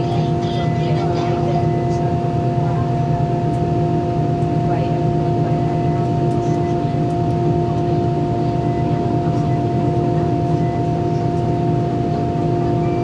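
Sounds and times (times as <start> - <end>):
aircraft cabin hum: 0.0 - 13.0
constant whining tones: 0.0 - 13.0.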